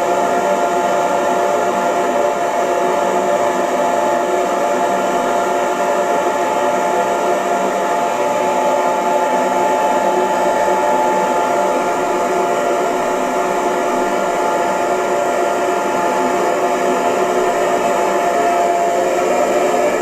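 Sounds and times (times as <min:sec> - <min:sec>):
hair dryer running: 0:00.0 - 0:20.0.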